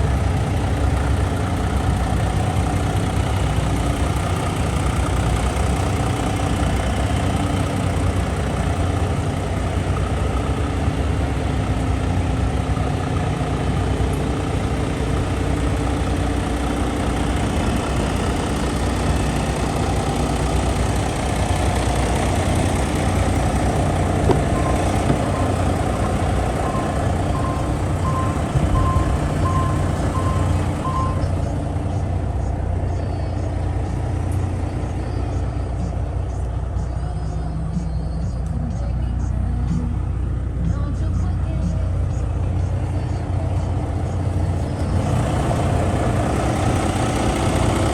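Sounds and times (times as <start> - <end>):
diesel truck engine idling: 0.0 - 47.9
reversing alarm beeps: 24.3 - 31.3.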